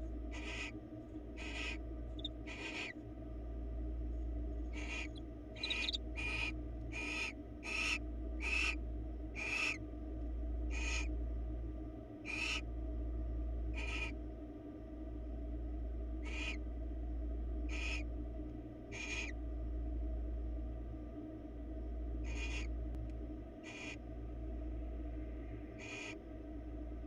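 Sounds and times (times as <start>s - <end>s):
low electrical hum: 0.0s - 27.0s
owl raspy hissing calls: 0.3s - 0.8s, 1.4s - 3.0s, 4.7s - 8.8s, 9.4s - 9.8s, 10.7s - 11.1s, 12.2s - 12.6s, 13.8s - 14.2s, 16.2s - 16.6s, 17.7s - 18.0s, 18.9s - 19.4s, 22.2s - 22.7s, 23.6s - 24.0s, 25.8s - 26.2s.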